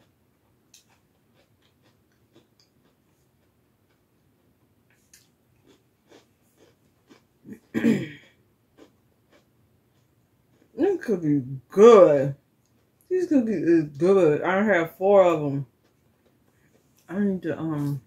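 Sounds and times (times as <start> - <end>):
person chewing crunchy cookie: 0.0 - 10.8, 12.6 - 13.1, 15.7 - 17.1.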